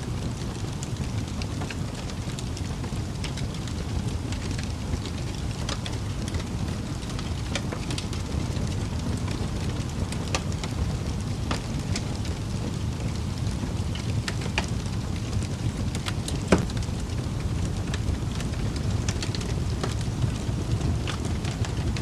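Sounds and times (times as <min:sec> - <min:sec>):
wood fire crackling: 0:00.0 - 0:22.0
fire pop: 0:15.9 - 0:21.6.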